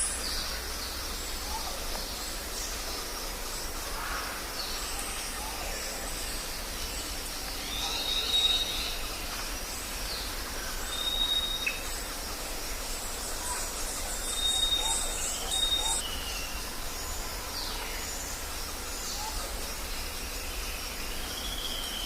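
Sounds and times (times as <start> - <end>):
birds calling: 0.0 - 17.2
background hiss: 0.0 - 22.0.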